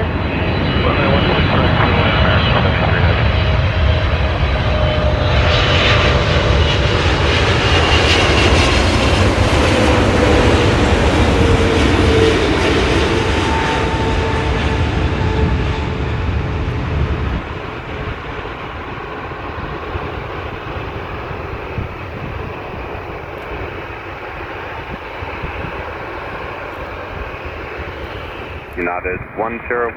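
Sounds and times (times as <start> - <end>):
jet airliner engine whine: 0.0 - 29.9.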